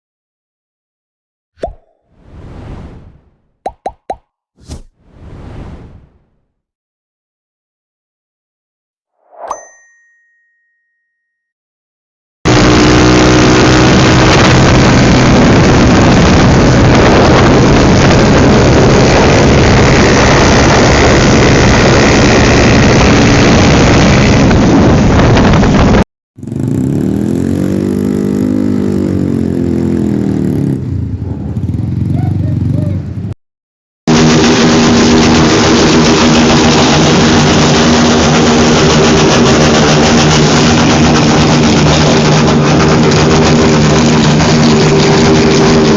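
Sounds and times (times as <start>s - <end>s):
motorcycle engines running: 12.5s - 24.7s, 26.4s - 33.4s, 34.1s - 45.9s
motorcycle engine revving: 12.5s - 25.0s, 26.4s - 33.4s, 34.1s - 45.9s.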